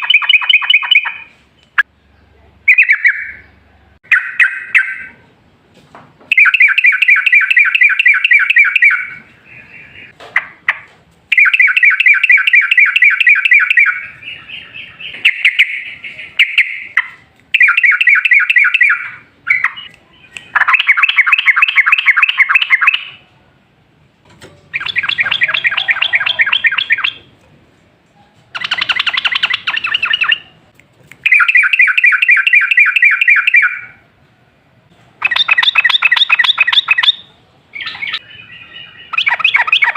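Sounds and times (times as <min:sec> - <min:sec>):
bird singing bubbling chatter: 0:24.7 - 0:27.4, 0:28.5 - 0:30.6, 0:35.2 - 0:39.9.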